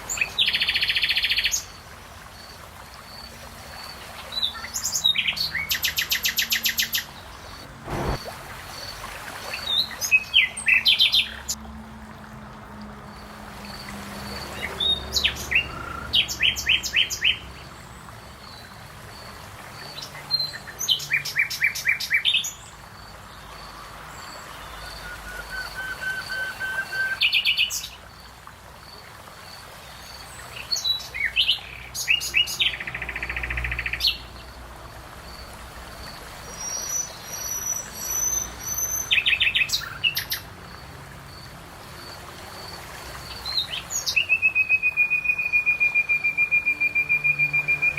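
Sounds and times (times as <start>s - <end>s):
songbirds trilling and chirping: 13.0s - 47.9s.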